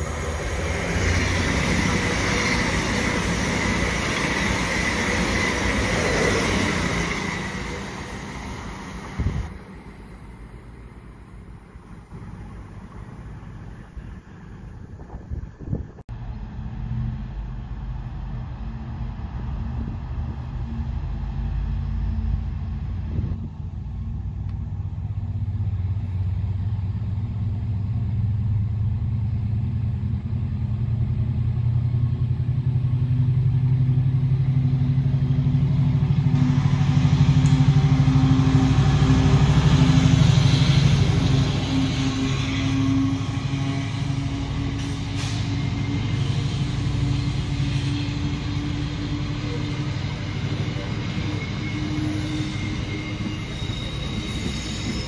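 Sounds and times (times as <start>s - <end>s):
wheels hissing on rail: 0.0s - 15.9s, 25.1s - 27.6s, 35.4s - 55.0s
diesel train engine drone: 0.0s - 55.0s.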